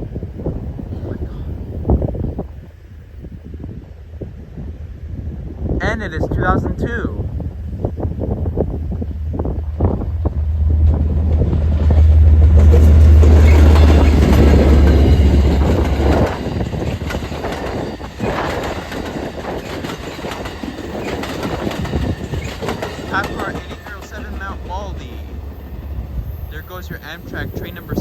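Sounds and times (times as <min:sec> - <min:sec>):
diesel locomotive engine drone: 0:06.6 - 0:28.0
train wheels clicking over rail joints: 0:09.3 - 0:28.0.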